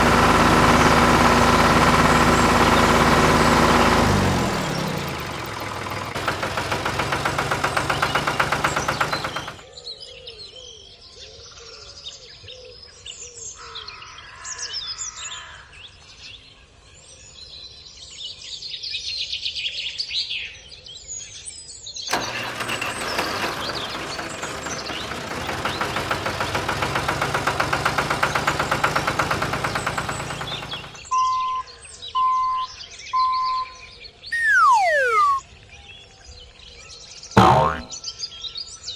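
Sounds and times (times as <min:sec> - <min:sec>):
small engine running fast: 0:00.0 - 0:09.6, 0:22.1 - 0:31.1, 0:34.4 - 0:35.4, 0:37.4 - 0:37.9
falling whistle sound effect: 0:34.4 - 0:35.4, 0:37.4 - 0:37.9
short beeps: 0:34.4 - 0:35.4, 0:37.4 - 0:37.9.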